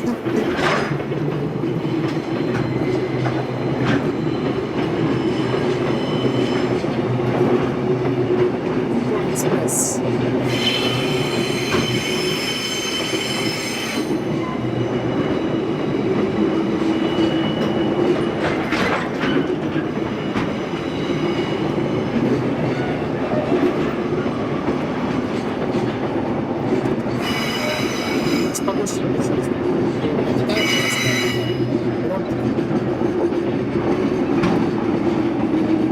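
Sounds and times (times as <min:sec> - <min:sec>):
train knocks: 0:00.0 - 0:08.6, 0:10.4 - 0:14.8, 0:33.8 - 0:35.9
train wheels rumbling on rail: 0:00.0 - 0:09.3, 0:10.0 - 0:35.9.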